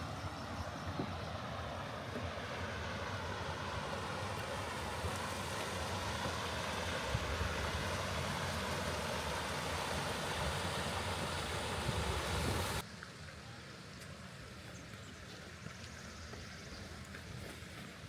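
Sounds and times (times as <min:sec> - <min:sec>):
waterfall rushing: 0:01.8 - 0:12.8.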